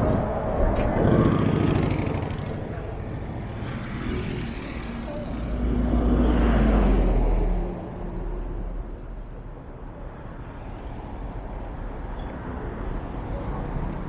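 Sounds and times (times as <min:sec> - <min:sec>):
heavy vehicle low rumble: 0:00.0 - 0:07.2
road traffic passing: 0:00.0 - 0:14.0.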